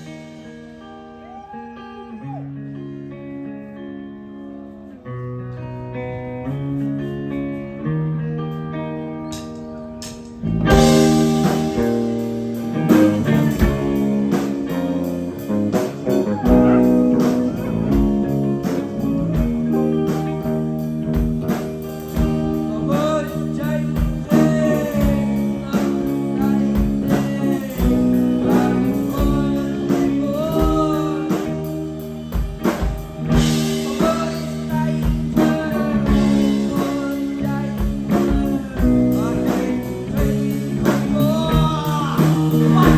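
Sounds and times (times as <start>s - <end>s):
live rock band playing: 0.0s - 42.9s.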